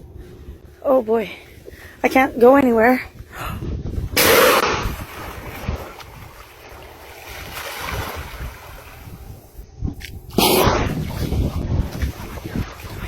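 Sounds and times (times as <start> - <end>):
wind buffeting microphone: 0.0 - 13.0
water washing around boat: 4.2 - 9.6, 10.3 - 13.0.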